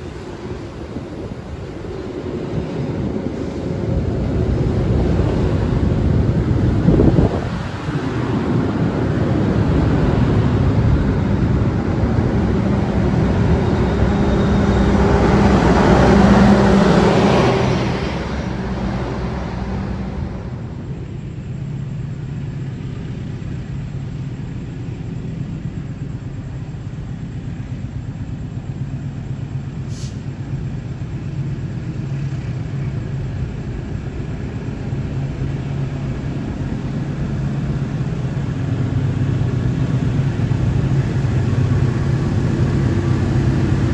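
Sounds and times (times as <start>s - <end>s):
steady low hum: 0.0s - 29.8s
train rumbling past: 0.0s - 43.9s.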